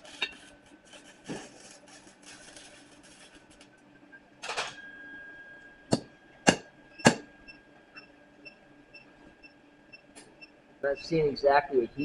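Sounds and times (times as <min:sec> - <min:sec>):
hammer striking steel punch: 0:05.9 - 0:07.3.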